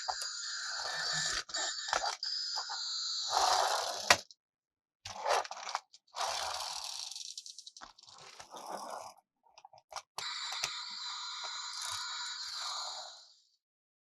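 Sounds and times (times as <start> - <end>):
plastic toy clicks and rattles: 5.1 - 8.5.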